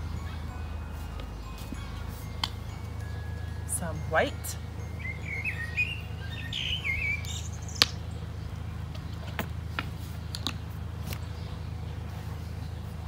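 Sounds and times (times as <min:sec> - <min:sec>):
steady low hum: 0:00.0 - 0:13.0
bird chirping and warbling: 0:01.4 - 0:09.4.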